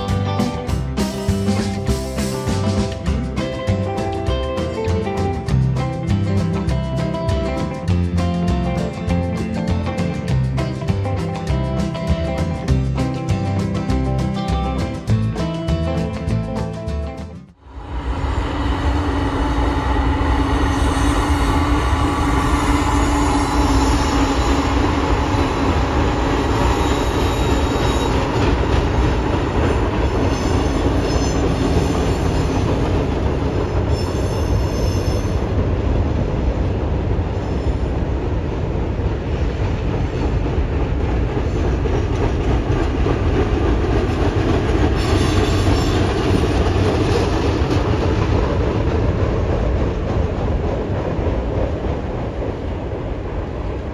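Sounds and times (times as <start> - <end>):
train wheels rumbling on rail: 17.5 - 53.9
wheel squeal: 20.3 - 29.3, 30.0 - 35.5.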